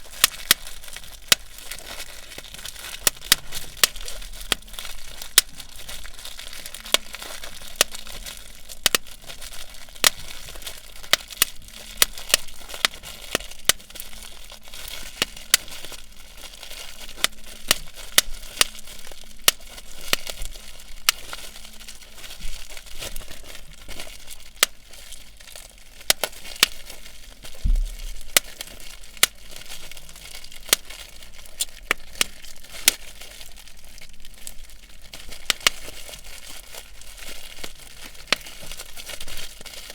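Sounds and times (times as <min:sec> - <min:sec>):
low thump: 0:27.6 - 0:28.3.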